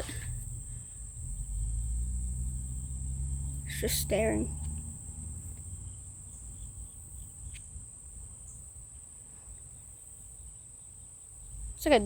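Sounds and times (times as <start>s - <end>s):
low rumble on microphone: 0.0s - 6.9s
insects trilling: 0.0s - 12.0s.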